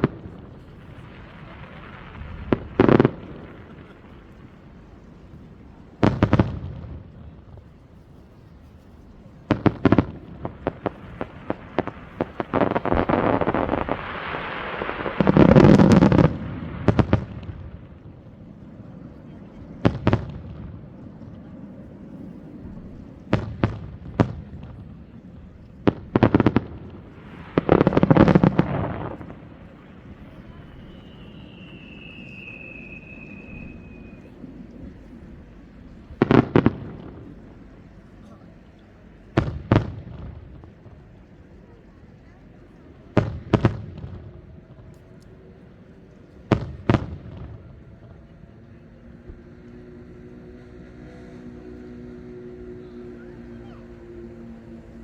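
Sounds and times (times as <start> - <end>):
fireworks bangs: 0.0 - 8.2, 9.2 - 21.4, 22.2 - 41.3, 43.0 - 49.7
fireworks crackling: 0.0 - 55.0
fireworks sharp pops: 6.0 - 8.2, 9.4 - 18.0, 22.6 - 35.5, 39.2 - 41.0, 43.2 - 45.4, 46.4 - 48.2.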